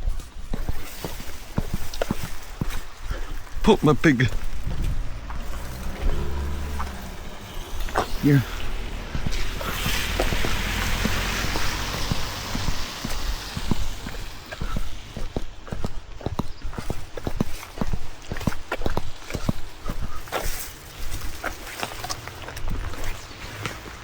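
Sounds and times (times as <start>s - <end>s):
quick footsteps on wet pavement: 0.0s - 24.0s
tyres hissing on wet road: 0.6s - 15.5s, 17.6s - 24.0s
low rumble: 4.4s - 15.4s.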